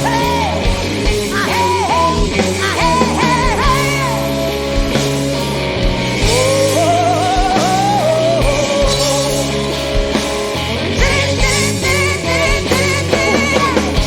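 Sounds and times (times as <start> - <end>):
blues-rock band playing: 0.0 - 14.0
woman singing: 1.3 - 4.3, 6.2 - 9.5, 11.0 - 14.0.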